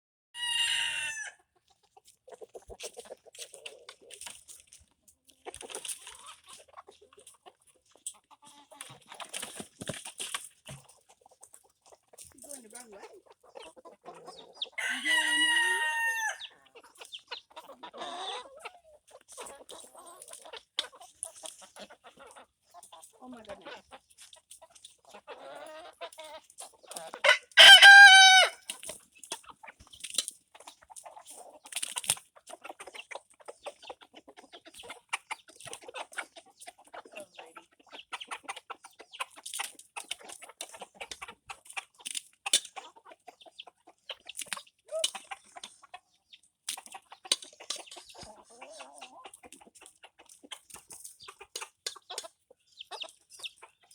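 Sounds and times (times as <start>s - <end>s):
rooster crowing: 0.4s - 1.4s, 14.8s - 16.4s, 27.2s - 28.6s
chickens clucking: 0.4s - 53.9s.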